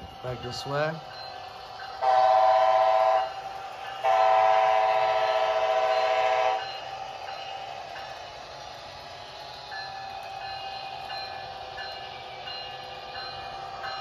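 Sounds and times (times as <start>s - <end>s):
model locomotive running sound: 0.0s - 14.0s
model locomotive horn blasts: 2.0s - 3.4s, 4.0s - 6.7s.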